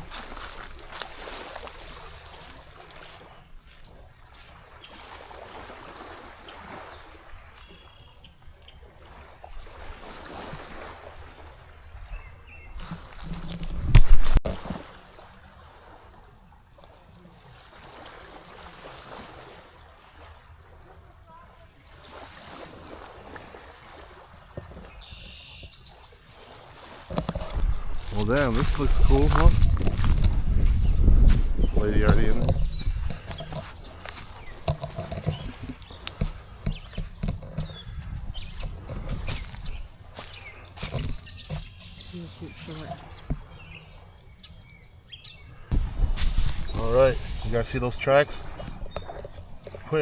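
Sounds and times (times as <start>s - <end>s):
footsteps on shore: 0.0s - 12.1s, 12.7s - 15.0s, 21.8s - 50.0s
small waves lapping on sand: 0.0s - 50.0s
wind rumble on microphone: 11.8s - 14.7s, 27.1s - 44.1s, 44.8s - 47.7s
birds chirping: 24.4s - 26.5s, 27.2s - 50.0s.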